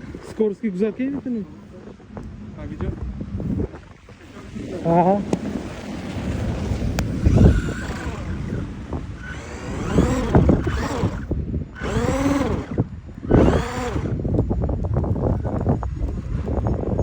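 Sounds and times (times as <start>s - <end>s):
wind noise on microphone: 0.0s - 17.0s
electric motor whining: 3.4s - 17.0s.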